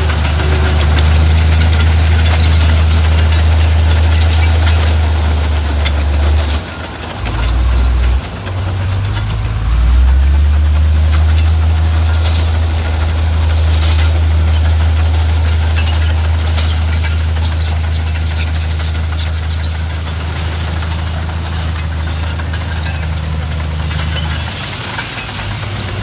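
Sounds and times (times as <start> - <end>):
metallic clanks and rattles: 0.0 - 9.5, 11.1 - 26.0
bulldozer diesel engine droning: 0.0 - 26.0.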